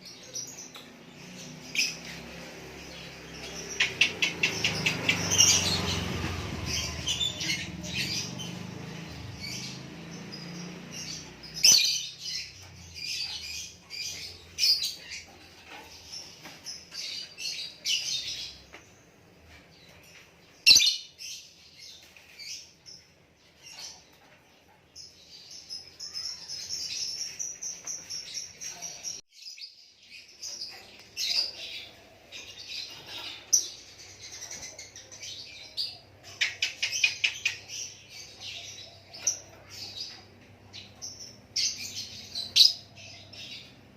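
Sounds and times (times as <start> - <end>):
songbird chirping and trilling: 0.0 - 43.9.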